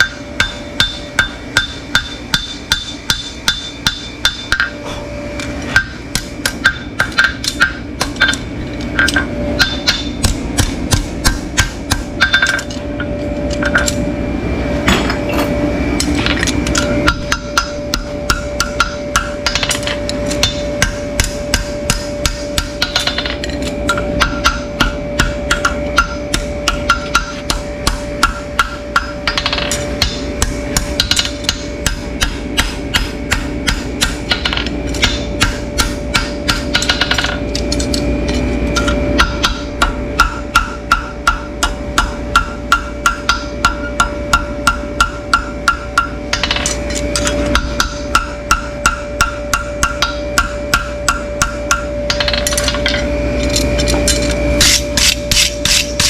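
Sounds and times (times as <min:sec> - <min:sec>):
steady hum: 0:00.0 - 0:56.0
rhythmic knocking: 0:16.7 - 0:37.4, 0:38.2 - 0:56.0.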